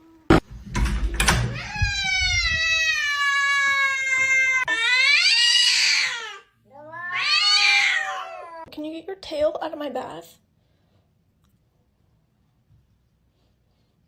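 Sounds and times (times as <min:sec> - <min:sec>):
cat yowling: 0:01.5 - 0:08.7.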